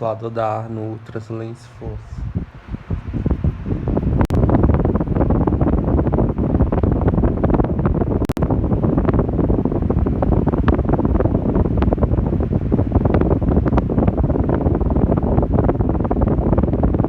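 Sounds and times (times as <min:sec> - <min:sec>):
electric fan wind on microphone: 0:00.0 - 0:17.0.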